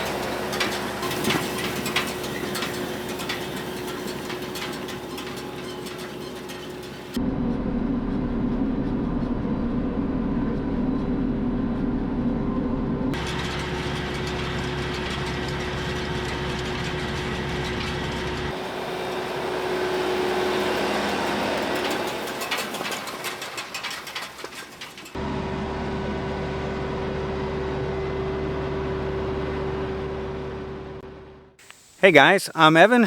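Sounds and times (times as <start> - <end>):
square baler working: 0.0 - 10.0, 13.2 - 25.4
tractor engine running: 0.0 - 33.0.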